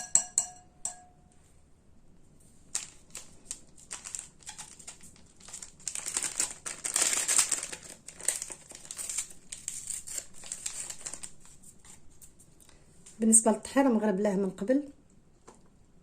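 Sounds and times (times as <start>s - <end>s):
plastic packaging crinkling: 2.6s - 12.3s.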